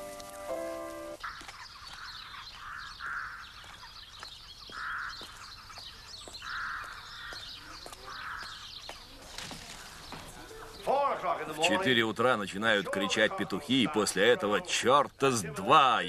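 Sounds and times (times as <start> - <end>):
harsh cawing bird calls: 1.2 - 9.1.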